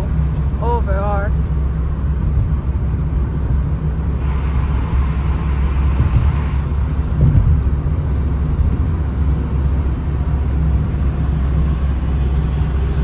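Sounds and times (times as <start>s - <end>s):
engine and tyre rumble: 0.0s - 13.0s
passing vehicle hiss: 4.1s - 13.0s.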